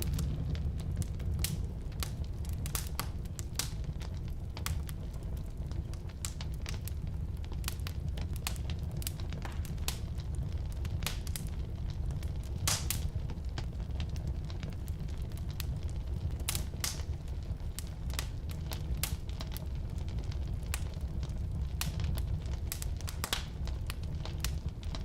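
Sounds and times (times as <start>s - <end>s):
firewood crackling and popping: 0.0s - 25.0s
low rumble of flames: 0.0s - 25.0s.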